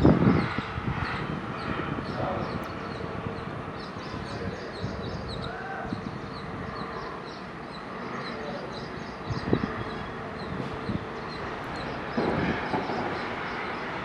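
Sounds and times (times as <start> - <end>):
birds chirping: 0.1 - 14.0.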